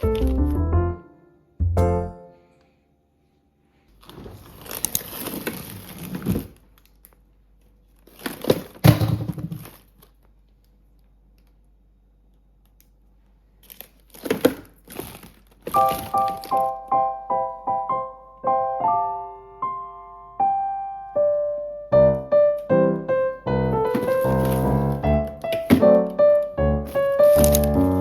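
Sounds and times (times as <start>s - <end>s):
crinkling and rustling handling noise: 3.7s - 11.7s, 12.6s - 16.8s, 23.9s - 28.0s.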